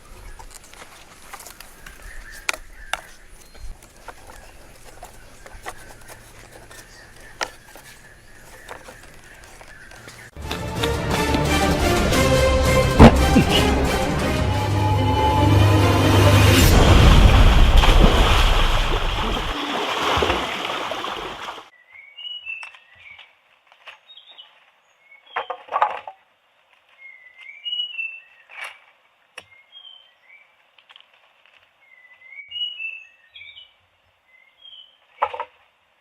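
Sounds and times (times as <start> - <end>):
small birds chirping: 0.0 - 10.4
loud wash of noise: 11.8 - 20.5.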